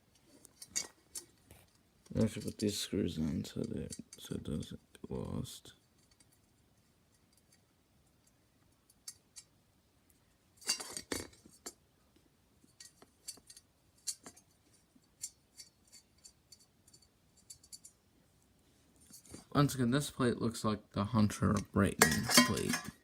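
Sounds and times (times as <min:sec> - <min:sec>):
small metal parts clinking: 0:22.0 - 0:23.0.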